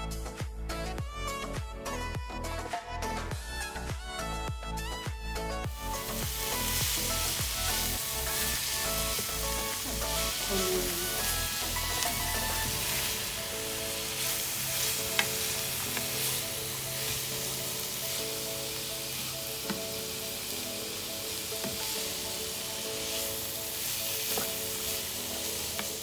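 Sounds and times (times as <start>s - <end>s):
vegetables sizzling in oil: 5.6s - 26.0s.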